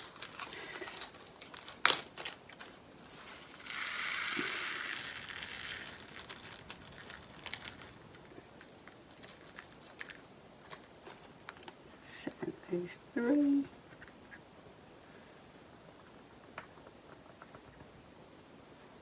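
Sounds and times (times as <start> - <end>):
small plastic pieces pouring: 0.0 - 10.8.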